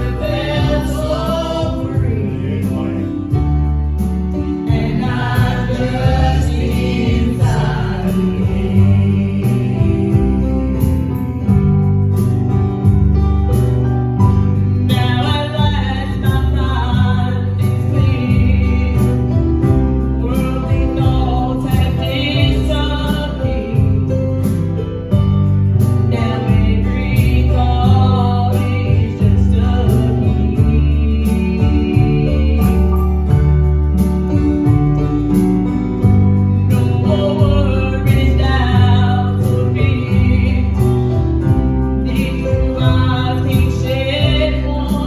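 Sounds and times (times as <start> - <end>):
group singing gospel: 0.0 - 3.6, 4.4 - 11.6, 26.0 - 33.0, 36.8 - 45.0
guitar and bass accompaniment: 0.0 - 45.0.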